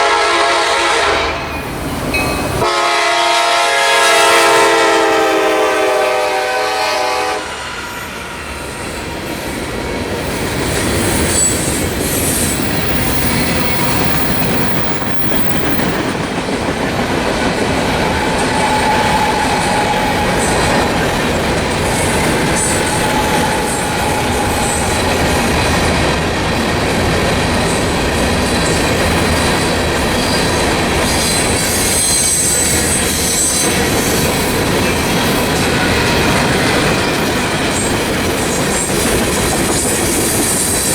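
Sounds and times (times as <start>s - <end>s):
locomotive horn: 0.0s - 1.5s, 2.6s - 8.3s, 18.2s - 21.0s, 22.6s - 25.1s
freight train wheels rumbling: 0.0s - 40.9s.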